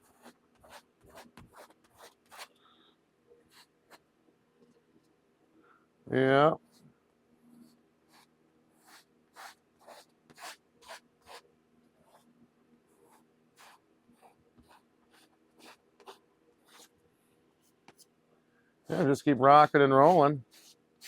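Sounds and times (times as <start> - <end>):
scratchy paint strokes on canvas: 8.2 - 11.4, 13.0 - 16.9, 20.0 - 20.8.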